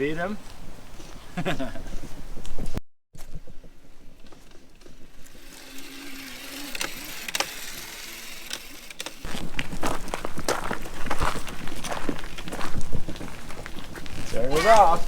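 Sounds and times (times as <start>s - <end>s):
electric motor whine: 4.7s - 9.6s.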